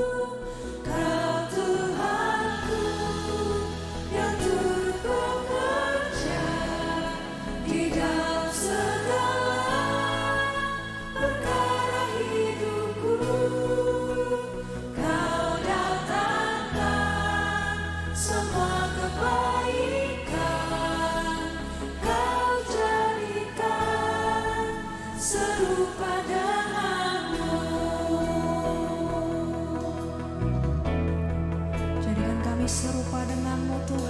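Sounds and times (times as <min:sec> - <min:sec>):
choir singing worship song: 0:00.0 - 0:34.0.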